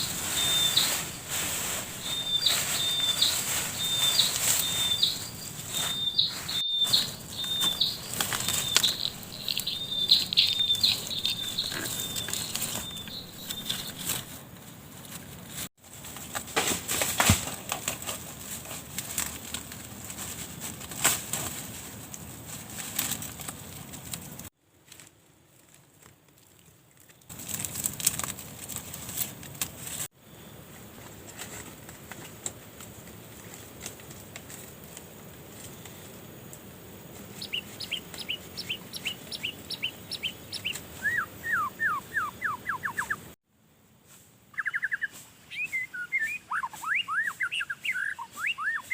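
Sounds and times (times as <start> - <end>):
small bird chirping: 0.0 - 14.3, 37.3 - 43.4, 44.5 - 48.9
crackling and rustling clicks: 6.8 - 30.1.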